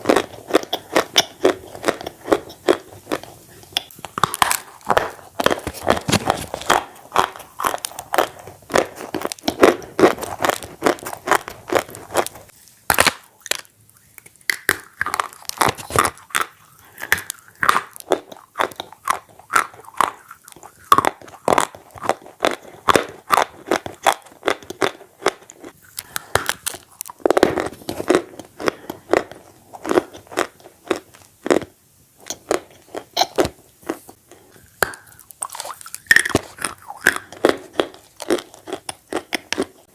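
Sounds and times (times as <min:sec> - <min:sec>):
bread crunching and chewing: 0:00.0 - 0:39.9
mouth clicks: 0:12.9 - 0:21.8, 0:34.5 - 0:37.6.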